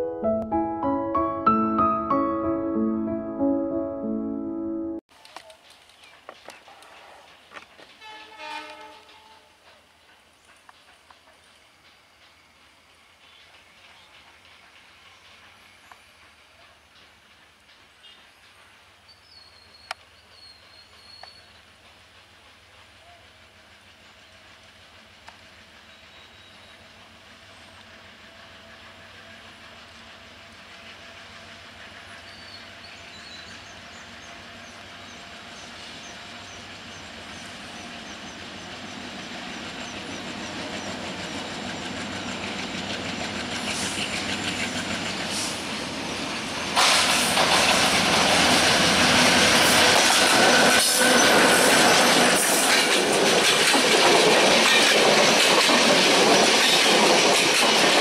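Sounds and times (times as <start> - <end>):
diesel locomotive approaching: 6.6 - 58.0
wheels clattering over rail joints: 49.6 - 58.0.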